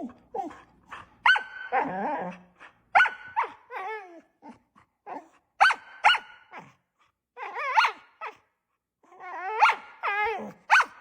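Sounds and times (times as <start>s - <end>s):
dog barking: 1.2s - 1.8s, 3.0s - 3.6s, 5.6s - 6.6s, 9.6s - 9.9s, 10.7s - 11.0s.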